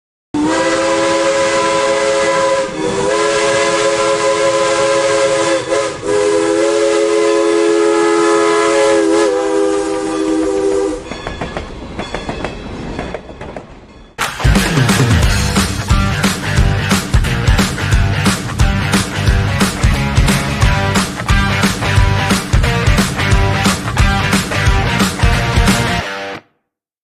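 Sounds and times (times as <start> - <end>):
train horn blasts: 0.4 - 11.1.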